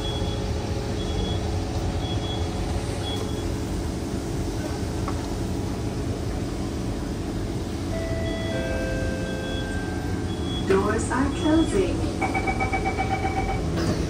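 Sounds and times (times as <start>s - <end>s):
train cabin hum and rumble: 0.0s - 14.0s
short high beeps: 8.0s - 13.7s.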